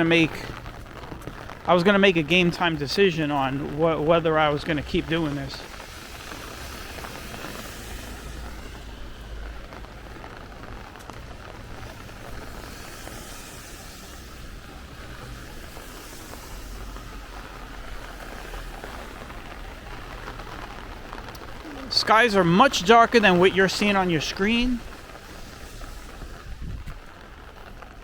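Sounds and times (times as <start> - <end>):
steady rain hissing: 0.0 - 28.0
low rumble: 3.6 - 21.9, 24.8 - 28.0.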